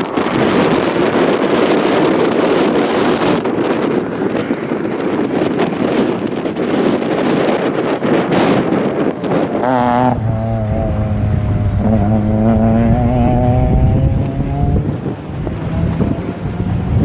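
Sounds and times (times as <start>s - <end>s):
wind buffeting the microphone: 0.0s - 17.0s
rally car engine accelerating: 9.6s - 17.0s.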